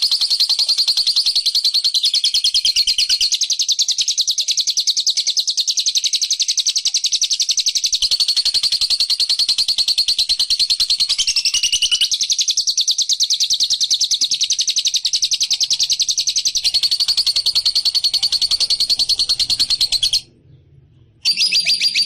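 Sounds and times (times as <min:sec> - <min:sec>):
songbird rapid chattering call: 0:10.3 - 0:20.2, 0:21.3 - 0:22.0.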